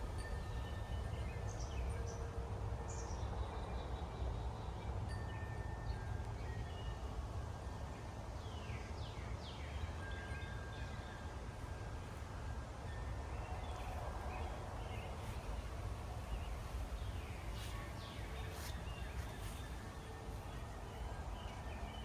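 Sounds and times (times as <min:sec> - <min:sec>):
wind buffeting microphone: 0:11.3 - 0:22.0
birds chirping and whistling: 0:13.7 - 0:22.0.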